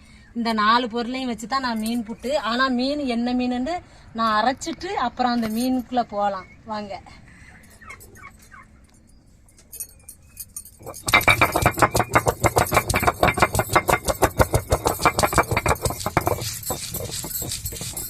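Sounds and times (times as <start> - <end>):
stone roller grinding on stone: 10.6 - 18.0.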